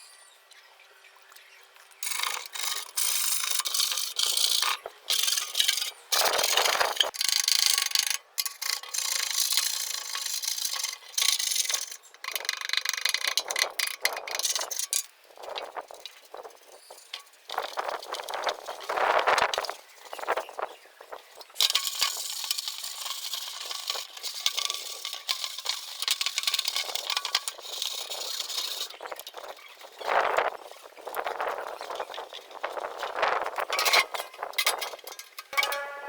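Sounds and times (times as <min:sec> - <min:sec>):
hand tool rasping strokes: 0:35.1 - 0:36.0.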